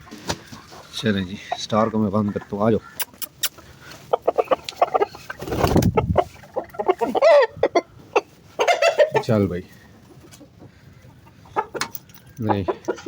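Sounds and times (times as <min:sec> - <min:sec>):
chickens clucking: 0:00.0 - 0:13.0
chicken squawk: 0:00.4 - 0:09.4.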